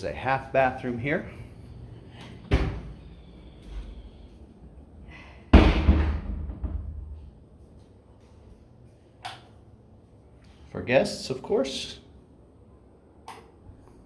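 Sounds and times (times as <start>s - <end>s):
thumps with low rumble: 5.6s - 7.4s.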